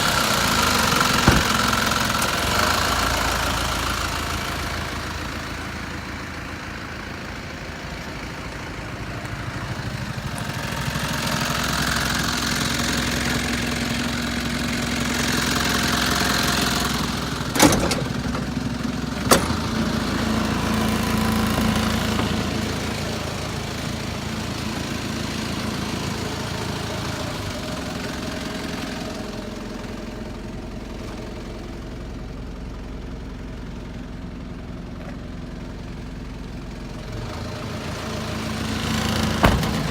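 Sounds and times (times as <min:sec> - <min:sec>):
truck engine revving and idling: 0:00.0 - 0:39.9
sharp knocks: 0:01.1 - 0:01.8, 0:39.4 - 0:39.9.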